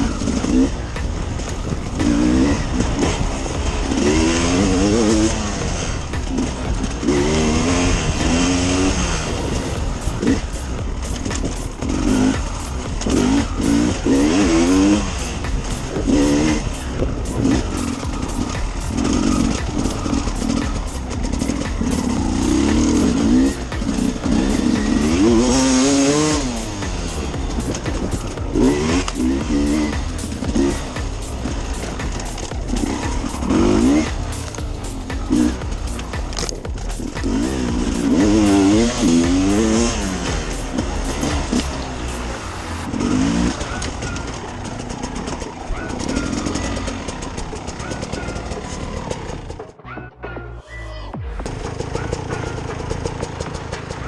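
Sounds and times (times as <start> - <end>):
rapid ticks: 0.0 - 42.8
motorcycle engine revving: 0.0 - 50.0, 51.1 - 54.0
rush and rattle of riding: 0.0 - 50.1, 51.1 - 54.0.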